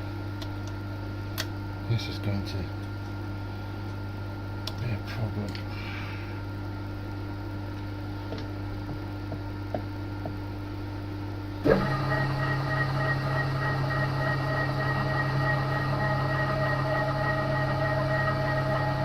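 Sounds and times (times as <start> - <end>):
milling machine humming: 8.8 - 19.0
steady machine whine: 9.1 - 19.0.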